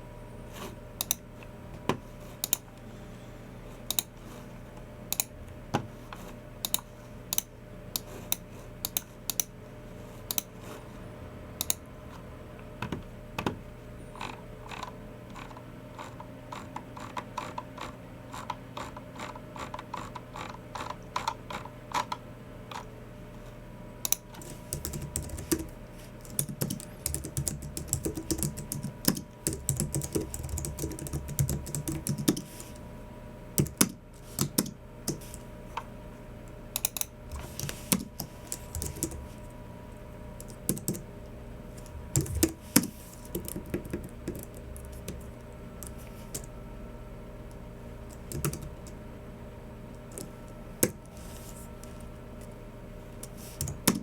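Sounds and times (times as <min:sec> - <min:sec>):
typing on a keyboard: 0:24.1 - 0:32.5, 0:36.8 - 0:39.2, 0:48.2 - 0:48.7.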